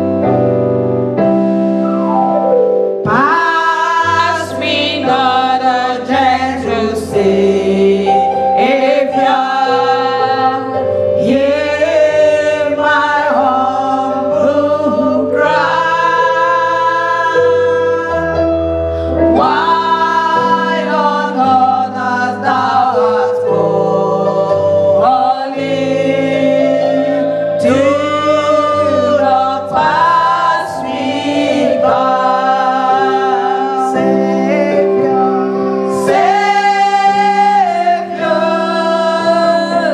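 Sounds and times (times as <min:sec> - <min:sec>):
keyboard accompaniment: 0:00.0 - 0:39.9
choir singing a hymn: 0:03.0 - 0:39.9.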